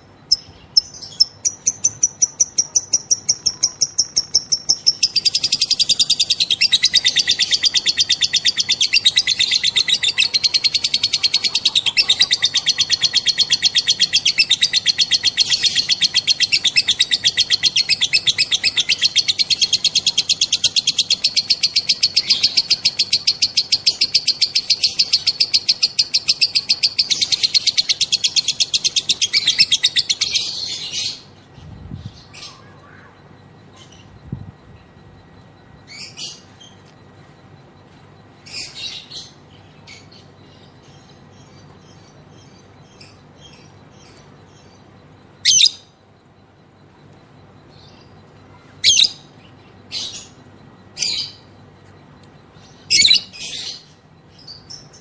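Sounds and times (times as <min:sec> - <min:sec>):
lovebird chattering trill: 0:00.0 - 0:36.8, 0:38.2 - 0:51.8, 0:52.4 - 0:55.0
bird chirps: 0:00.0 - 0:55.0.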